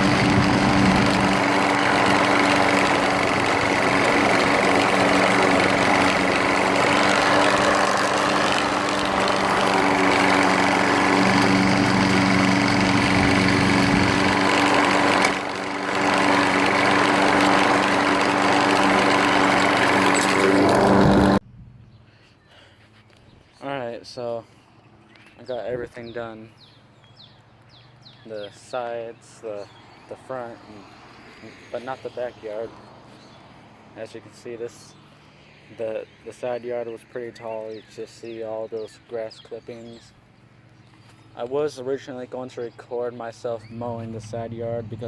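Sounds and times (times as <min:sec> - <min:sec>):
lawn mower engine running: 0:00.0 - 0:21.4, 0:43.6 - 0:45.0.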